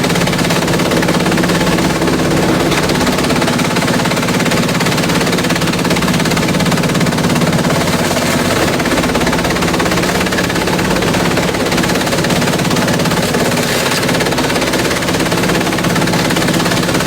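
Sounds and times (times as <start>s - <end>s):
shredder machine clattering: 0.0s - 17.0s.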